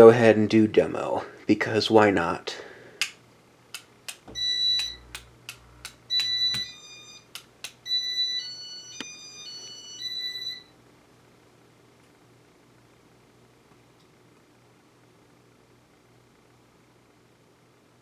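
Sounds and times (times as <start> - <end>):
button clicks: 3.8 - 6.8
piezo beeps: 4.3 - 5.2, 5.8 - 8.4.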